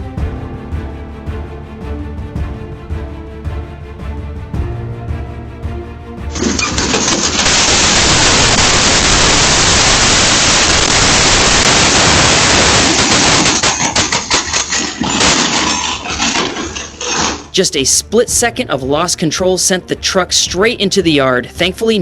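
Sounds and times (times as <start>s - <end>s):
harsh roar of truck crash: 6.3s - 17.5s
crackles and knocks: 6.3s - 17.6s.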